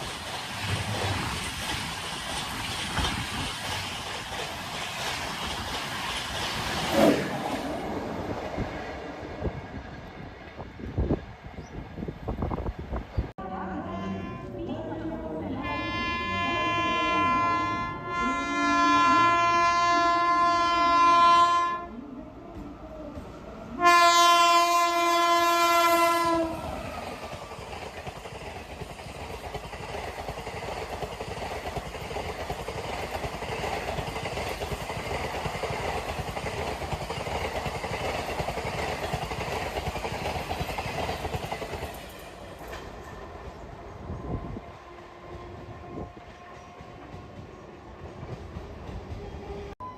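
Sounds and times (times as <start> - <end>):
train passing at speed: 0.0 - 49.9
train air horn blasts: 15.6 - 21.9, 23.8 - 26.7, 43.9 - 47.4.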